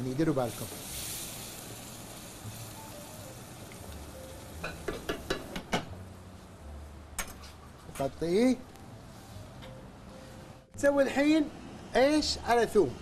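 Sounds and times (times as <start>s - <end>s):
chicken sizzling in a wok: 0.0s - 5.5s.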